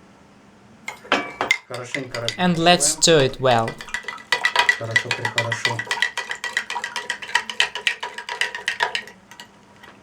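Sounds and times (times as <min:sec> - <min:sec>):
stirrer clinking against glass jar: 0:02.2 - 0:09.1.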